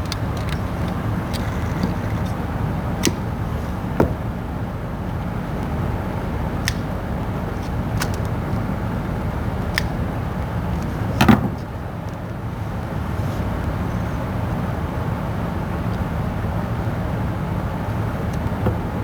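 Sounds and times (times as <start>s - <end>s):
light clicks: 0.0s - 3.8s, 6.6s - 8.7s.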